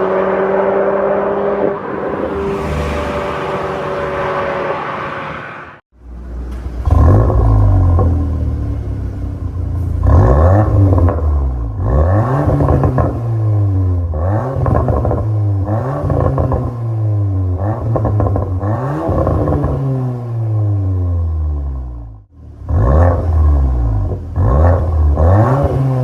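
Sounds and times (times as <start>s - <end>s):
car engine revving: 0.0s - 5.9s, 6.8s - 17.0s.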